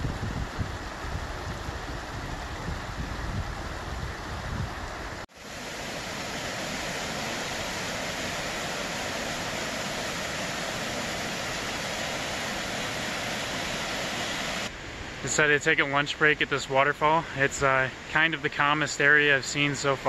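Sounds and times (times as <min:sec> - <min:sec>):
wind rumbling on microphone: 0:00.0 - 0:15.2
waterfall rushing: 0:04.8 - 0:14.7.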